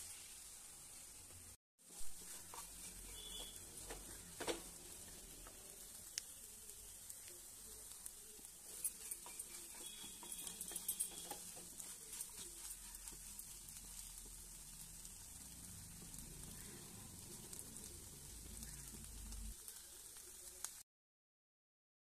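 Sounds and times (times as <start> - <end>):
food sizzling in a pan: 0.0 - 20.8
wooden spatula clicks and scrapes: 1.9 - 6.4, 7.0 - 14.5.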